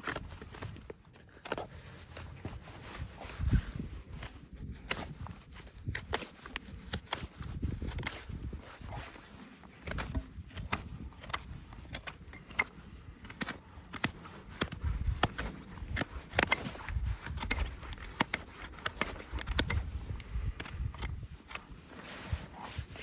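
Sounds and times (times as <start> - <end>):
sharp clicks and knocks on hoof: 9.7 - 21.8.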